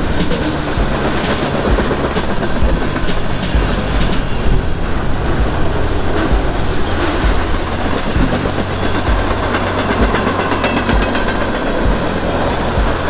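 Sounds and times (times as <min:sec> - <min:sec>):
low thumps: 0:00.0 - 0:13.0
train wheels rumbling on rail: 0:00.0 - 0:13.0.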